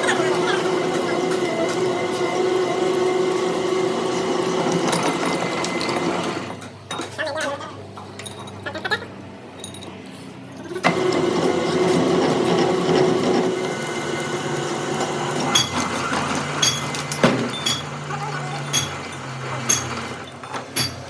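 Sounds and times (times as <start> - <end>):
workshop machine running: 0.0 - 7.2, 10.6 - 21.0.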